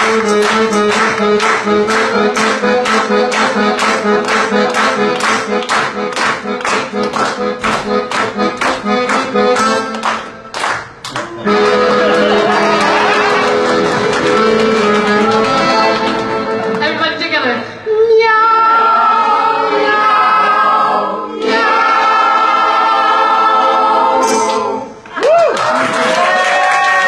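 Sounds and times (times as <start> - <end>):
accordion playing folk music: 0.0 - 17.2.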